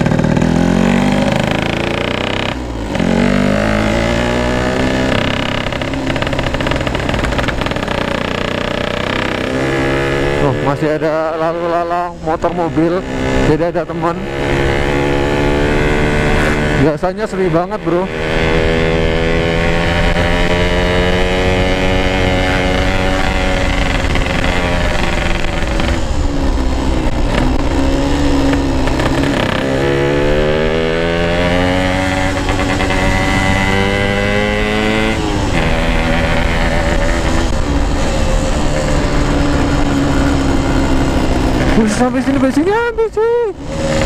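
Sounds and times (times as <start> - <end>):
two-stroke motorcycle engine: 0.0 - 44.0
wind noise: 11.6 - 44.0.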